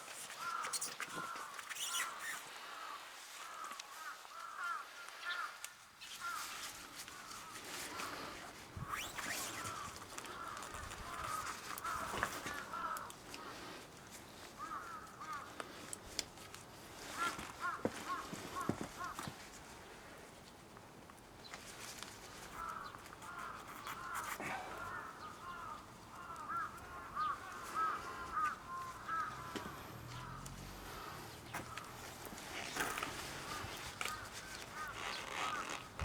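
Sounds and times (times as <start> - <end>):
birds calling: 0.3 - 5.5, 7.2 - 13.8, 22.5 - 36.0.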